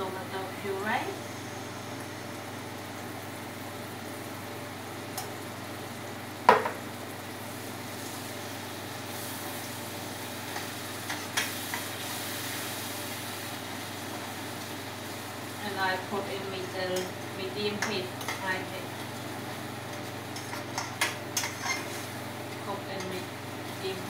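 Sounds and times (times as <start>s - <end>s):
tomato puree sizzling in a pot: 0.0s - 24.0s
tin can set down on counter: 6.5s - 6.8s
spatula scraping a pot: 20.4s - 22.0s.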